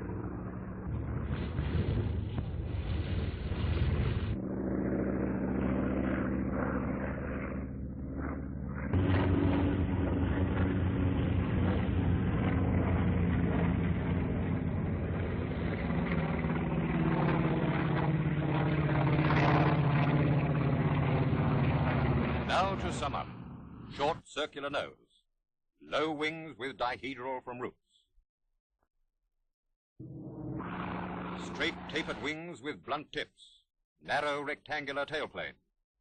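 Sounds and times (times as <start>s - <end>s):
aircraft piston engine droning: 0.0s - 24.2s, 30.0s - 32.6s.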